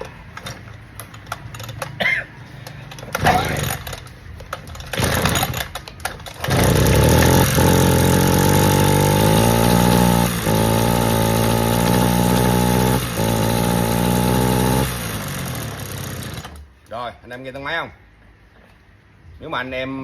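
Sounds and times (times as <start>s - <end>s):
brush cutter engine running: 3.1s - 4.1s, 4.7s - 16.6s.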